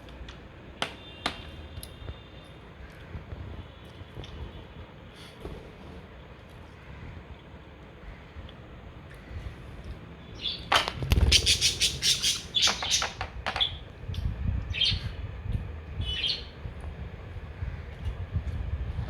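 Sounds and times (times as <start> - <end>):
budgies chirping: 10.4 - 13.8.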